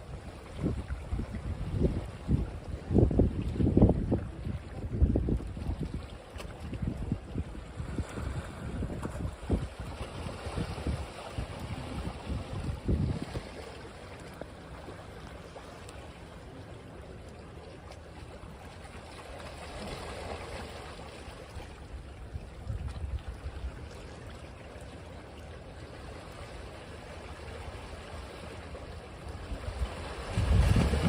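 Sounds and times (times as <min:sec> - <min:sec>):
wind rumble on microphone: 0:00.0 - 0:13.7, 0:21.6 - 0:24.1, 0:29.3 - 0:31.0
surf washing on beach: 0:26.8 - 0:31.0.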